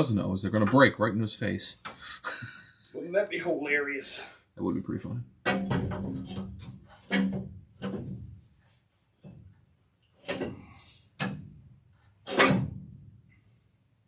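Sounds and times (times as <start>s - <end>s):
knocks and clunks of parts: 5.4s - 13.2s.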